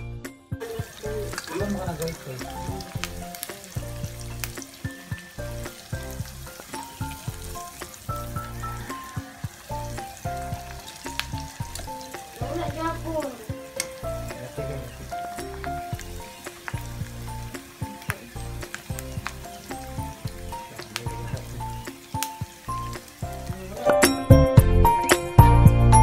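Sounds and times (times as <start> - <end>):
background music with bass: 0.0 - 26.0
pork chops sizzling in oil: 0.6 - 25.2
tongs clicking: 13.7 - 14.0.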